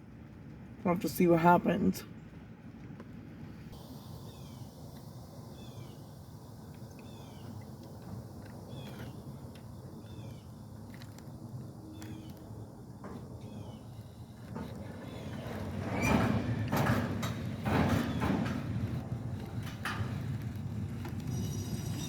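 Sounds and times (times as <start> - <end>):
bird chirping: 4.1 - 4.8, 5.4 - 8.0, 8.6 - 10.7.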